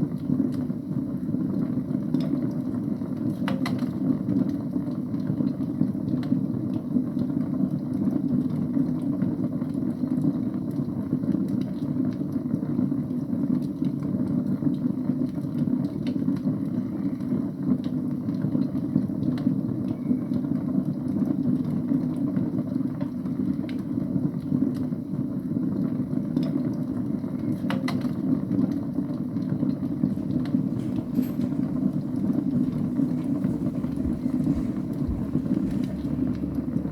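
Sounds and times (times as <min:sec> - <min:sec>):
fire crackling: 0:27.8 - 0:36.9
wood fire flames rushing: 0:28.8 - 0:36.9.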